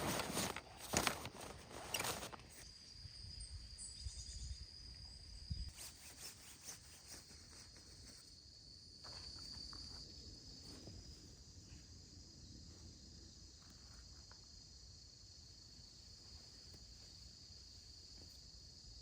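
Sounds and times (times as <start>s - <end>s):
soft rustling steps: 0.0s - 2.6s
insect high trill: 0.1s - 11.6s.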